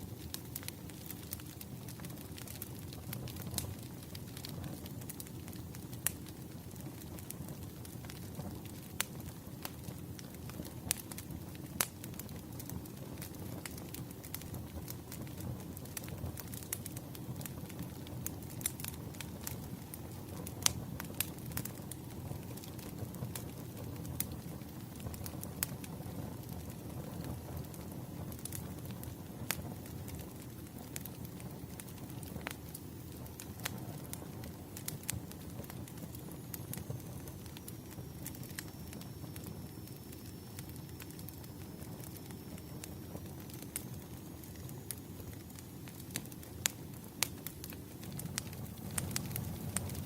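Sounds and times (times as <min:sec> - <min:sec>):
burning logs popping: 0:00.0 - 0:50.0
flames rumbling: 0:00.0 - 0:50.0
wood fire crackling: 0:00.0 - 0:50.0
faint high whistle: 0:37.0 - 0:42.9.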